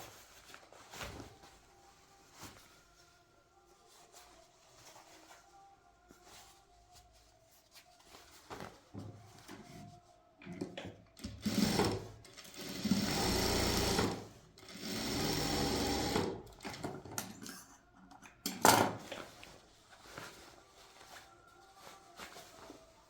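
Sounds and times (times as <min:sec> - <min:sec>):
sewing machine stitching: 0:11.2 - 0:16.8.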